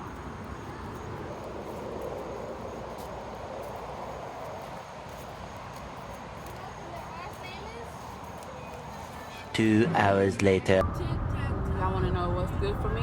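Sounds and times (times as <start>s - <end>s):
low rumble and hiss: 10.7s - 13.0s.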